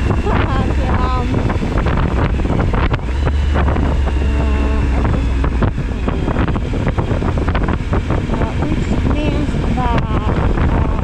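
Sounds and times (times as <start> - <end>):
motorcycle engine running: 0.0 - 11.0
wind buffeting microphone: 0.0 - 11.0.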